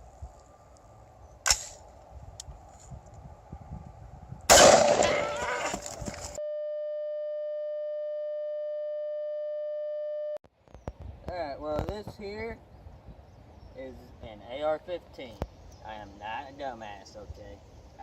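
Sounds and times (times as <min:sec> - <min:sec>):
rifle shot: 0:01.4 - 0:01.8, 0:04.5 - 0:05.8.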